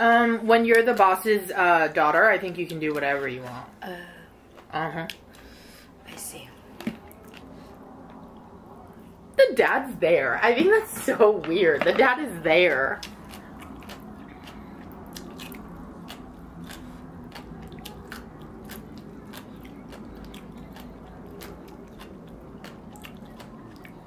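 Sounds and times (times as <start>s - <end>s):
low steady hum: 0.0s - 24.0s
chewing and crunching: 6.6s - 9.2s, 11.8s - 24.0s.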